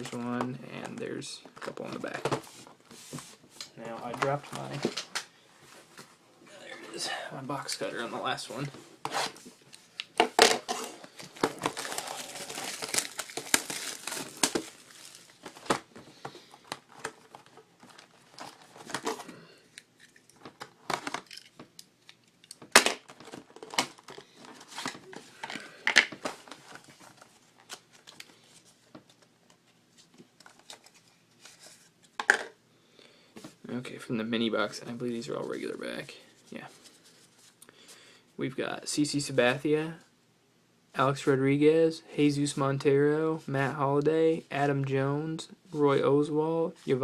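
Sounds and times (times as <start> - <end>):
cardboard and wrappers rustling: 7.7 - 19.4, 22.6 - 32.2
plastic wrapping tearing: 11.5 - 15.7.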